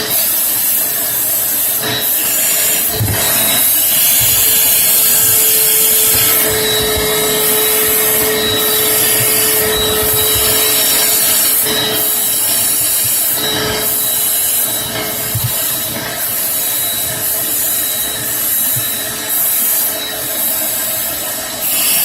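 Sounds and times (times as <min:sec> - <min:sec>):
scrubbing: 0:02.0 - 0:16.0.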